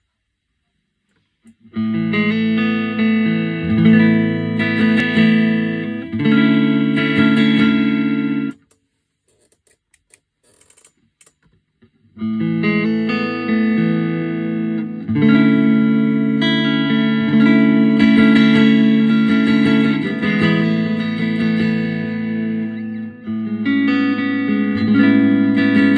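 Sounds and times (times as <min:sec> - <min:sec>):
electric guitar ringing chords: 0:01.6 - 0:08.6, 0:12.2 - 0:25.9.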